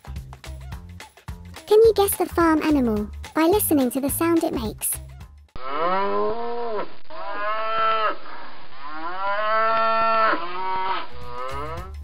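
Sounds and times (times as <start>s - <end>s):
cow mooing: 5.6s - 8.2s, 8.9s - 12.0s.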